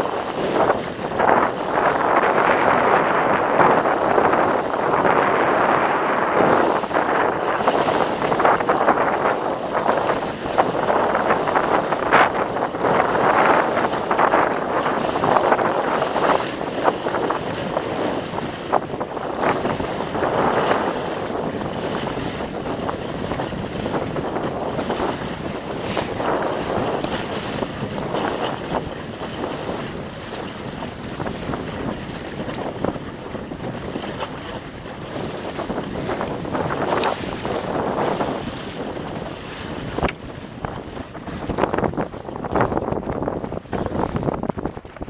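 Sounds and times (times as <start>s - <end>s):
water splashing along hull: 0.0s - 45.0s
wind buffeting microphone: 0.0s - 45.0s.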